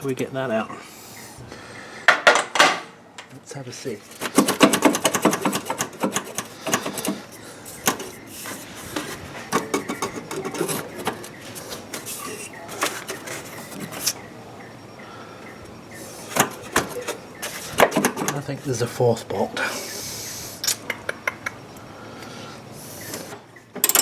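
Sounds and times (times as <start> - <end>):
hand tools clicking and rattling: 4.0 - 14.2, 16.3 - 18.5, 23.1 - 24.0.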